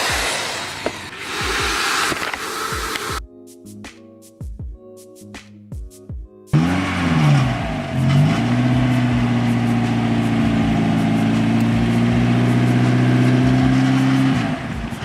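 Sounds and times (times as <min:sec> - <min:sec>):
car engine revving: 0:06.6 - 0:15.0.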